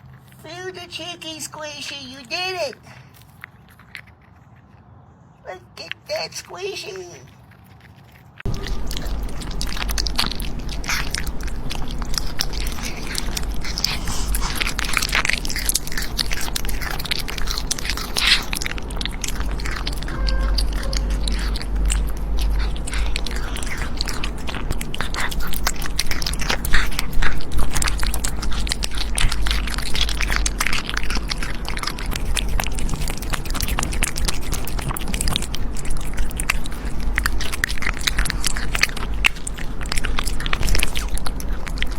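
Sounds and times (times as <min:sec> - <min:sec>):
animal crunching and chewing food: 0:00.0 - 0:41.9
steady low rumble: 0:08.4 - 0:41.9.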